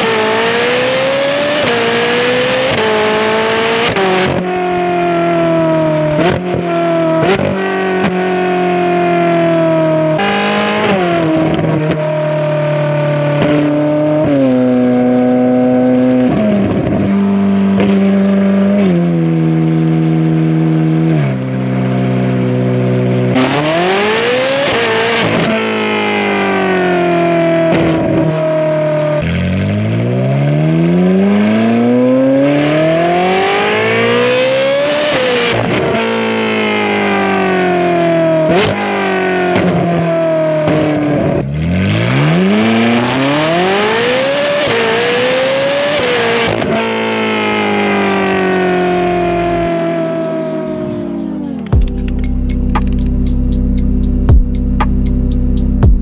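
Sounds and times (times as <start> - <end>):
sports car engine revving: 0.0 - 56.0
gear change: 20.6 - 25.6, 47.9 - 56.0.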